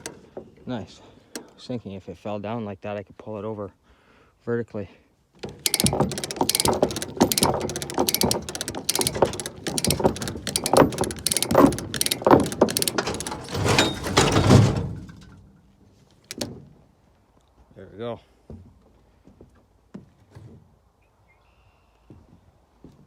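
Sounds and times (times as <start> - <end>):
ratchet clicking: 5.4 - 14.4, 16.3 - 16.5.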